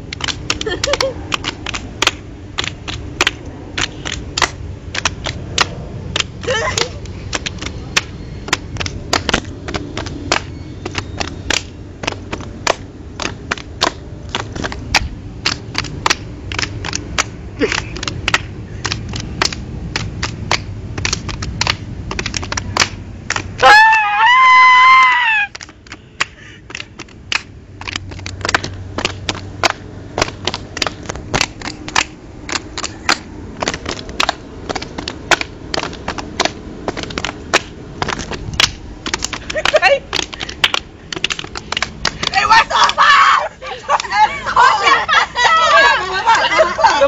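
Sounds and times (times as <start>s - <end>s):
hands clapping and slapping: 0.0s - 44.1s.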